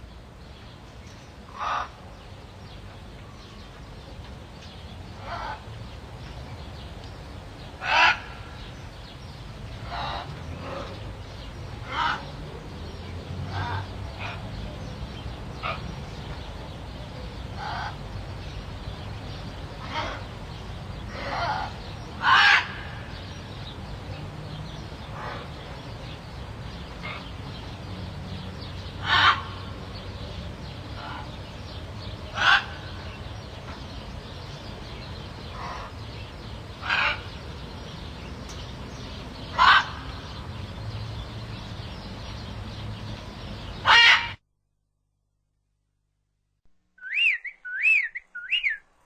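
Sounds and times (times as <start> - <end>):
distant bird calls: 0.0 - 44.4, 46.9 - 49.0
bird calling: 7.7 - 12.4, 19.2 - 23.8, 28.6 - 40.5, 43.3 - 44.4, 47.0 - 49.0.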